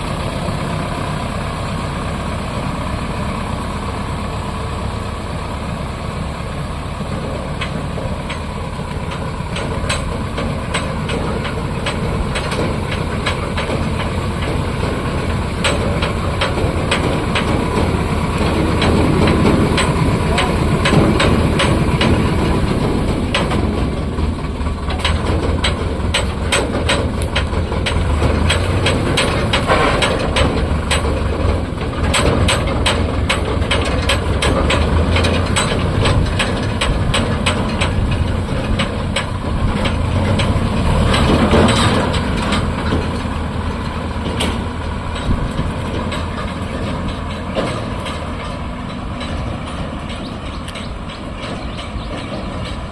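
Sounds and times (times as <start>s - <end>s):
tractor diesel engine droning: 0.0s - 52.9s
sharp clicks and rattles: 7.0s - 52.9s.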